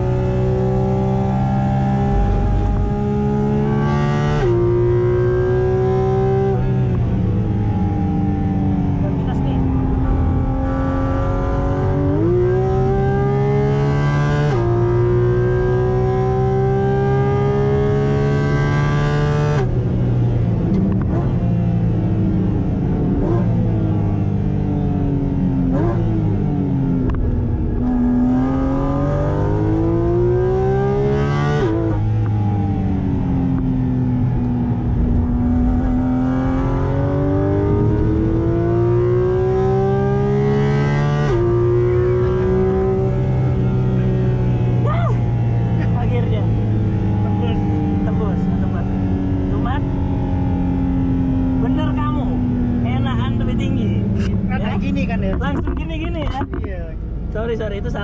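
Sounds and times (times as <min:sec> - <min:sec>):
car engine revving in cabin: 0:00.0 - 0:58.0.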